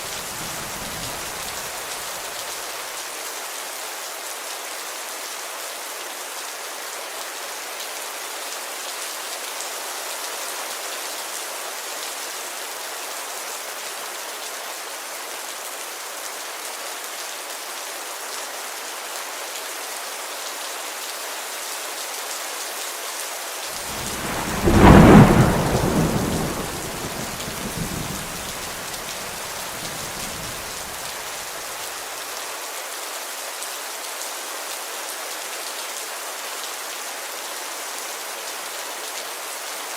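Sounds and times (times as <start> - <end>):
heavy rain on a window: 0.0 - 39.9
thunderclap rumbling: 23.8 - 31.0.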